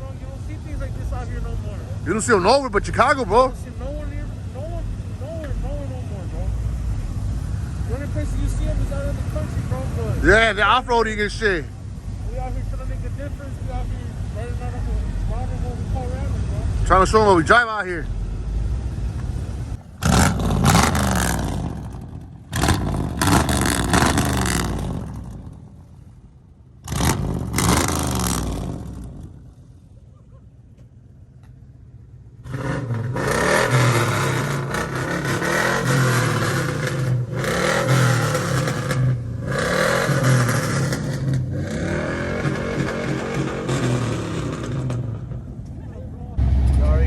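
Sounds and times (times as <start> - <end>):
truck engine revving: 15.3 - 25.9, 26.8 - 29.5, 32.4 - 45.6, 46.4 - 47.0.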